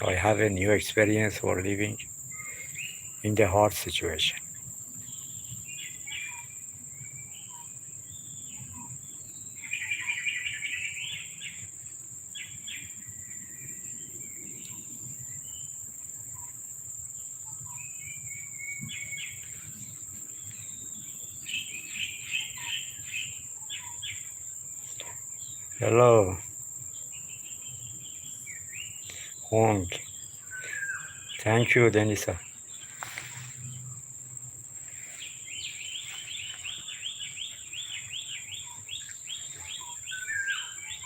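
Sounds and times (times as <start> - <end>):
small birds chirping: 0.0 - 41.0
high-pitched insect drone: 20.6 - 41.0.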